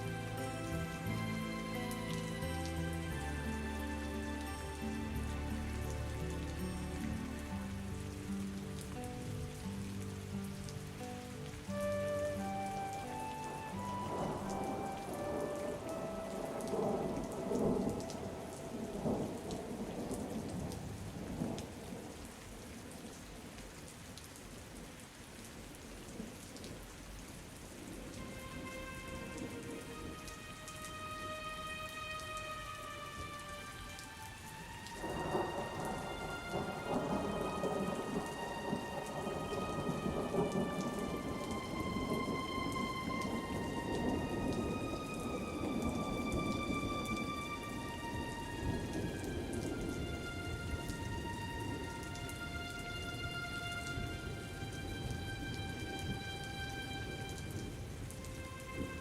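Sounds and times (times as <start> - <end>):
soft melody of held notes: 0.0 - 20.6, 28.2 - 59.0
steady rain: 0.0 - 59.0
rolling thunder: 11.8 - 22.6, 35.0 - 52.0.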